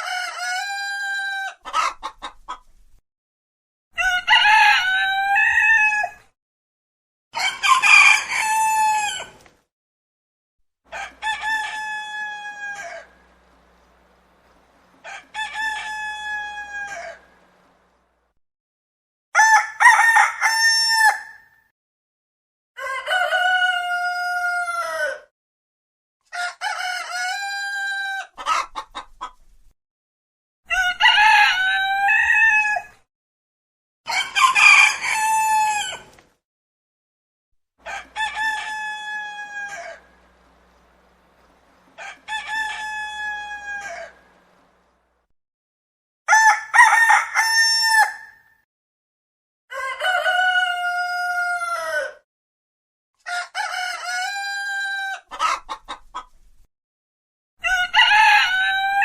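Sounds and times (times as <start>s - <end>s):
roosters crowing: 0.0s - 2.0s, 4.0s - 6.3s, 7.4s - 9.5s, 10.9s - 18.0s, 19.4s - 21.5s, 22.8s - 25.2s, 26.3s - 28.8s, 30.7s - 33.0s, 34.1s - 36.2s, 37.8s - 45.0s, 46.3s - 48.5s, 49.7s - 52.2s, 53.2s - 55.7s, 57.6s - 59.0s.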